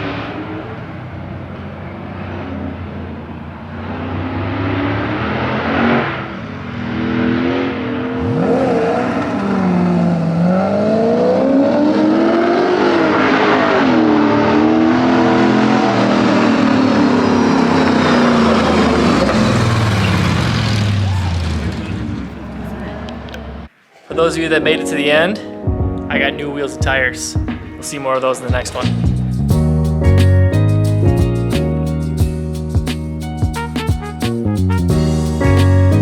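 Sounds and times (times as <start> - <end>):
engine revving: 2.0 - 23.7.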